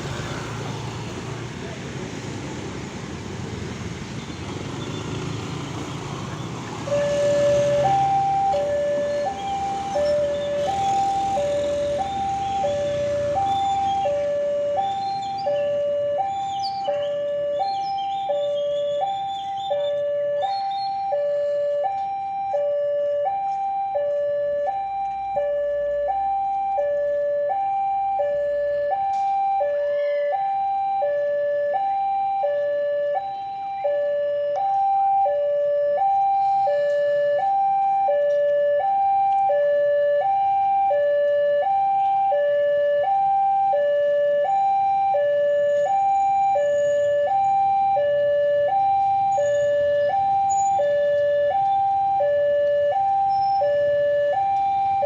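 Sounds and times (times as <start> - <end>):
two-tone hi-lo siren: 6.8 - 55.0.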